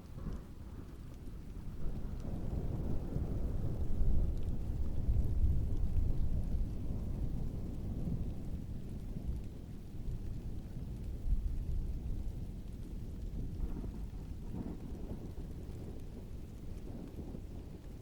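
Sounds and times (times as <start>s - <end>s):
distant thunder rumble: 0.0s - 18.0s
heavy rain: 0.0s - 18.0s.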